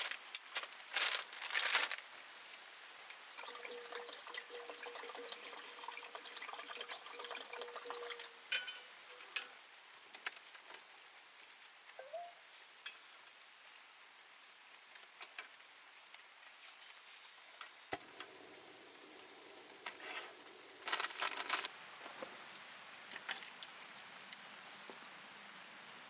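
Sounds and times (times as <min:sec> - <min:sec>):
raindrops tapping on plastic sheet: 0:00.0 - 0:02.1
rain falling: 0:00.0 - 0:02.2.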